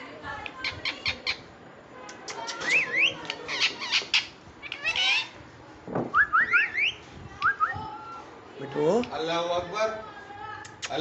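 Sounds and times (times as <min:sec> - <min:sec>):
parrot squawking and chirping: 0:00.6 - 0:01.5, 0:02.3 - 0:05.4.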